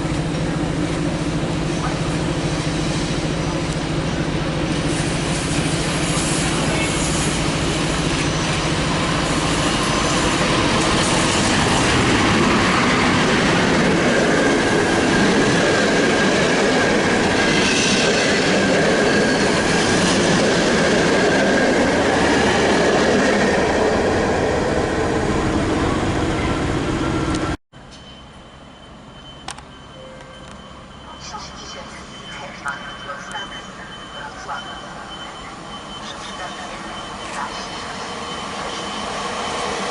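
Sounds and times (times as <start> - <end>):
train coaches rumbling over rails: 0.0 - 39.9
high wheel or brake squeal: 6.0 - 7.4.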